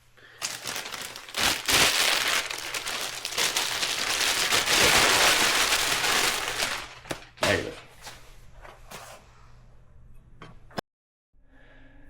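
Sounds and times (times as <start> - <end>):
packaging crinkling and rustling: 0.4 - 8.2.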